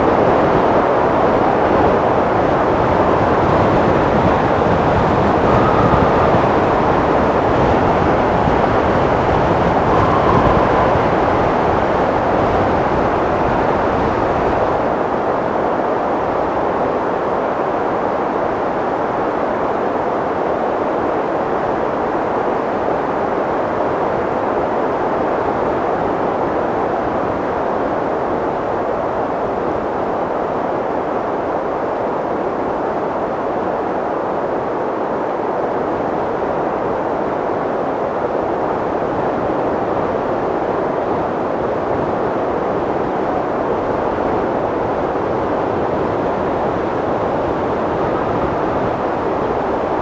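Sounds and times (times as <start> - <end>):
steady wind rushing: 0.0 - 50.0
wind rushing: 3.0 - 13.8.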